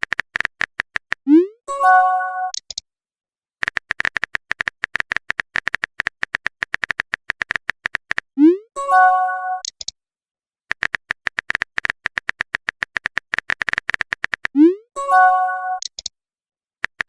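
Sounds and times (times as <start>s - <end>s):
phone keyboard typing taps: 0.0s - 1.2s, 3.6s - 8.3s, 10.7s - 14.6s.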